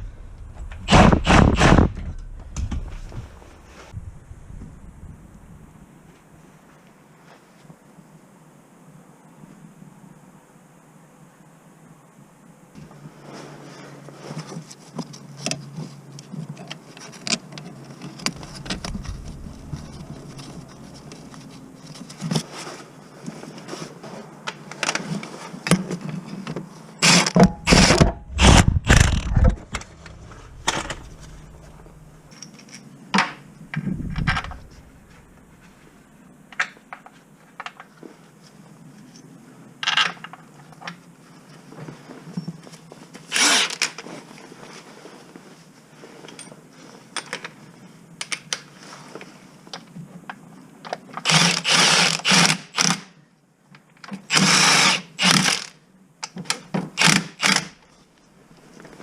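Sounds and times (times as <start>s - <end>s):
dull low thuds: 0.0s - 5.4s, 18.4s - 21.2s.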